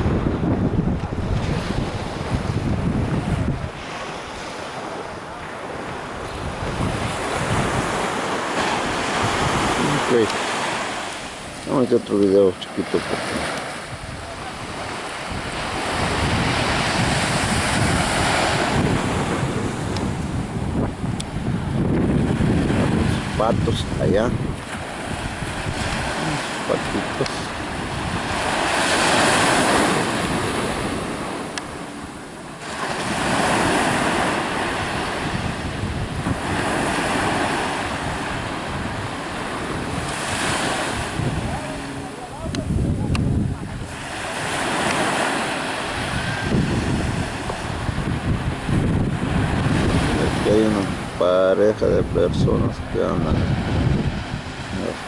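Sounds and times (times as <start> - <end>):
rushing water: 0.0 - 55.0
waves breaking: 0.0 - 55.0
wind buffeting microphone: 0.0 - 55.0.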